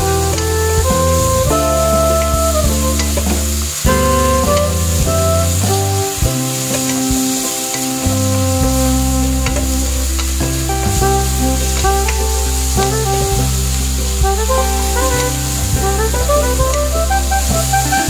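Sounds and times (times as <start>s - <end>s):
background music with bass line: 0.0s - 18.0s
food sizzling in a pan: 5.4s - 8.4s.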